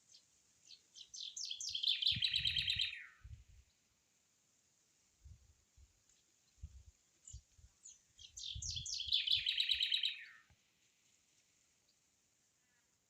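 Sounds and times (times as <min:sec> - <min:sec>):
songbird singing with trill: 0:00.0 - 0:03.8, 0:06.5 - 0:10.5.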